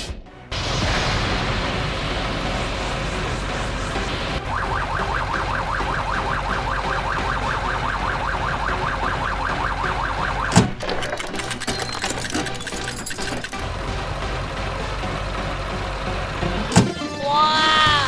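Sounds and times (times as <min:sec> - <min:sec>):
loud crash: 0:00.0 - 0:17.2
cartoon siren warbling: 0:04.4 - 0:10.7.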